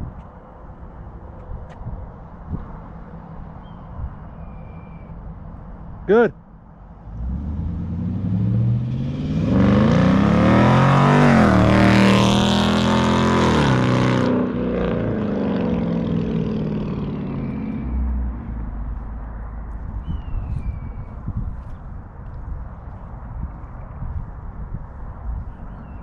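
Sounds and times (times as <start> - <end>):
car engine revving: 7.0 - 19.5.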